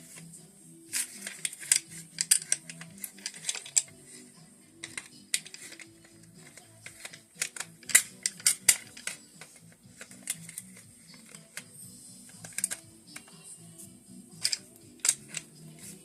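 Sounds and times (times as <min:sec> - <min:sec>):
background music: 0:00.0 - 0:16.0
clicks of rifle parts handled: 0:00.9 - 0:04.0, 0:04.8 - 0:11.7, 0:12.3 - 0:13.4, 0:14.3 - 0:16.0.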